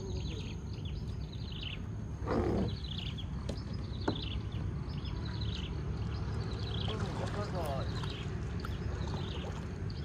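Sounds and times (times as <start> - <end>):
birds chirping: 0.0 - 10.0
low outdoor rumble: 0.0 - 10.0.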